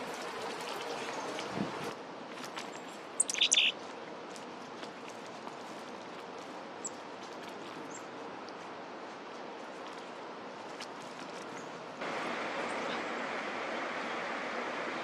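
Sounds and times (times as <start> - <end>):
steady outdoor hiss: 0.0 - 15.0
bird calls: 3.2 - 3.8
high bird chirps: 3.2 - 3.8.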